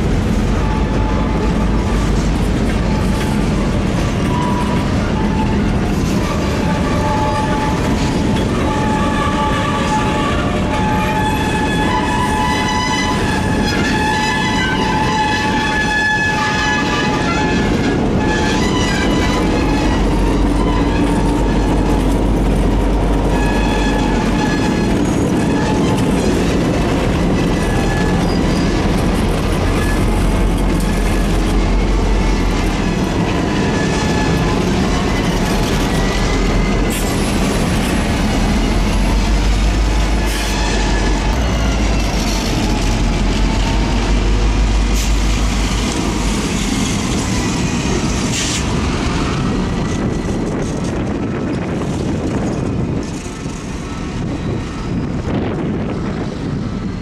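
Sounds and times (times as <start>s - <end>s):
freight train rumble: 0.0s - 57.0s
train wheels squealing: 27.5s - 29.0s.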